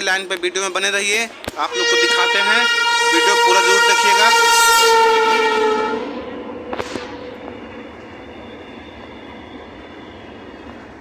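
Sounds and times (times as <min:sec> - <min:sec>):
passenger train running: 0:00.0 - 0:11.0
train horn: 0:01.7 - 0:10.2.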